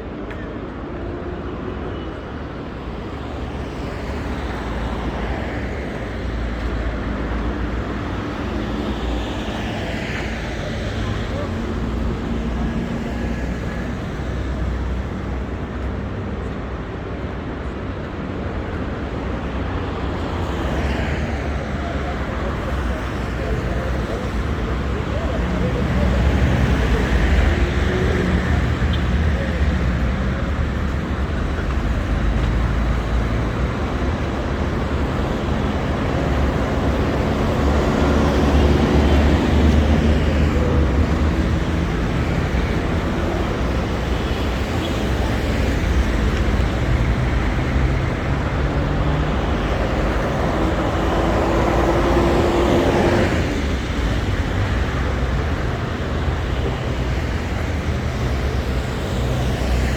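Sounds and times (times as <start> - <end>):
traffic rumble: 0.0 - 59.9
vehicle engine: 21.8 - 59.9.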